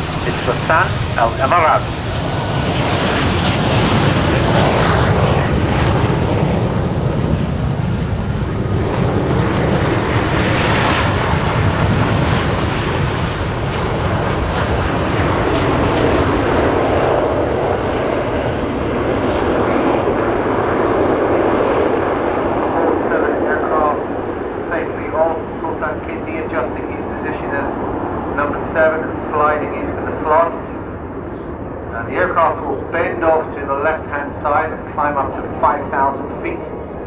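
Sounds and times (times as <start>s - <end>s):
jets flying overhead: 0.0s - 37.0s.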